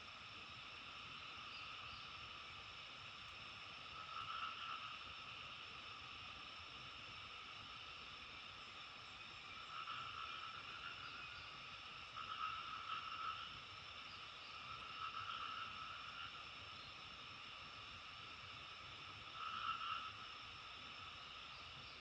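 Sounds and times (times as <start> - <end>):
frogs calling in chorus: 3.8 - 6.1, 9.4 - 17.5, 18.9 - 22.0.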